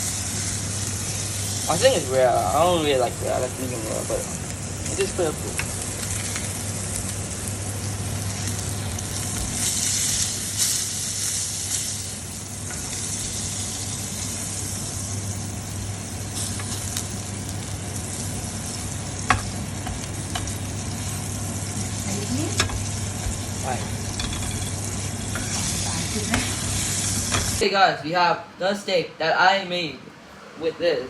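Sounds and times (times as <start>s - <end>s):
steak sizzling in a pan: 0.0s - 27.6s.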